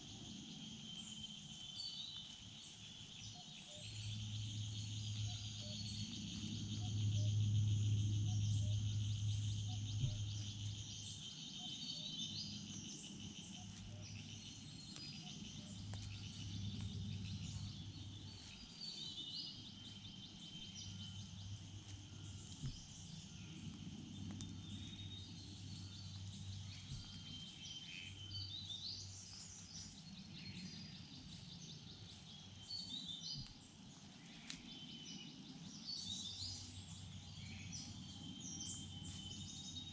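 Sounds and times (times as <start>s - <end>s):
insects trilling: 0.0s - 28.6s
low hum: 0.0s - 32.7s
songbird calls: 0.8s - 39.9s.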